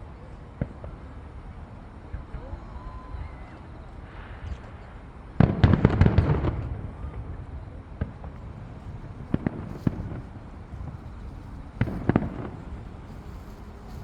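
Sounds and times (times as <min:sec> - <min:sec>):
fireworks bangs: 0:08.0 - 0:14.0.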